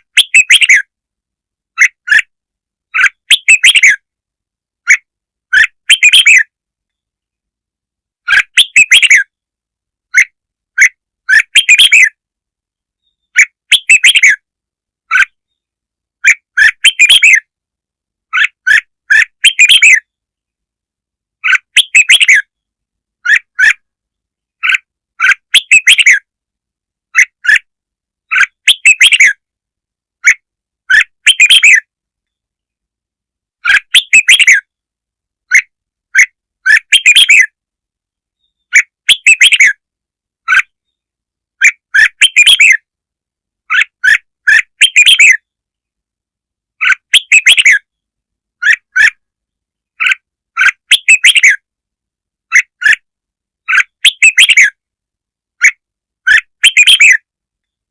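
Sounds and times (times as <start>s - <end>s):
bulbul chirping song: 0.0s - 0.9s, 2.9s - 4.1s, 4.8s - 7.0s, 8.2s - 9.4s, 10.1s - 12.2s, 13.0s - 14.5s, 15.1s - 17.5s, 18.3s - 20.2s, 21.4s - 23.9s, 24.6s - 26.3s, 28.3s - 29.4s, 30.2s - 32.4s, 33.6s - 34.7s, 35.5s - 37.6s, 38.4s - 39.8s, 41.6s - 42.9s, 43.7s - 45.6s, 46.8s - 48.0s, 48.6s - 49.3s, 50.0s - 51.7s, 53.6s - 54.8s, 55.6s - 57.8s.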